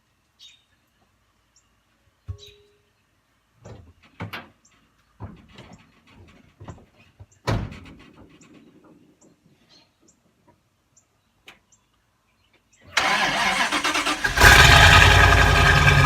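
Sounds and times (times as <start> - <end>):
birds chirping faintly: 0.2 - 7.5, 8.2 - 13.0.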